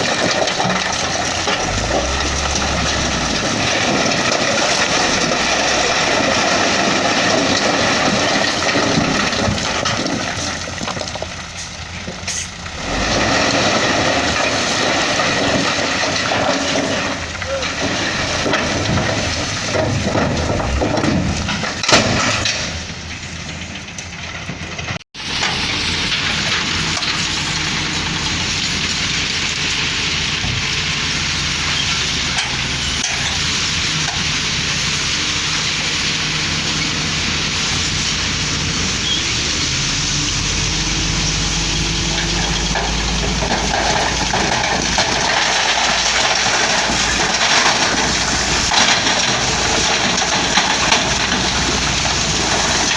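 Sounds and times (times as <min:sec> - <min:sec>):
diesel engines droning: 0:00.0 - 0:52.9
deep low rumble: 0:00.9 - 0:07.6, 0:18.7 - 0:22.9.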